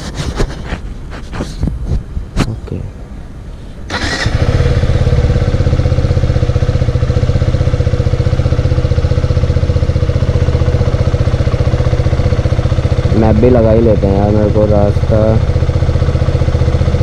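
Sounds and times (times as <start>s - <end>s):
motorcycle engine idling: 3.9s - 17.0s.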